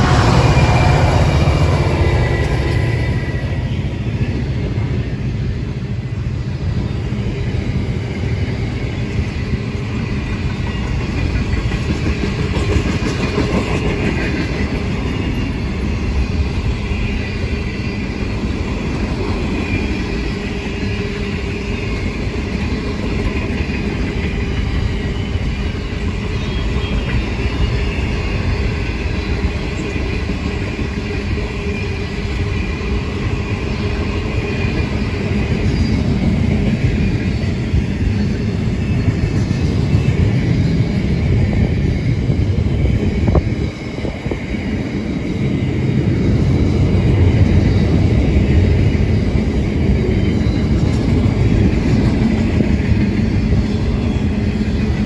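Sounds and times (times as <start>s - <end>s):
freight train wagons rolling past: 0.0s - 55.0s.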